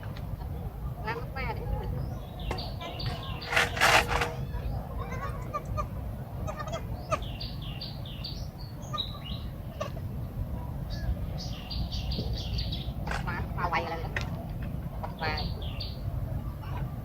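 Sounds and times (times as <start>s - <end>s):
loud rustling: 2.9s - 4.5s.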